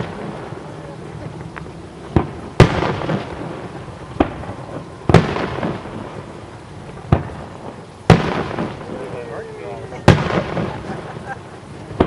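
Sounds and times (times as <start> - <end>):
fireworks booming with echo: 0.0 - 12.0.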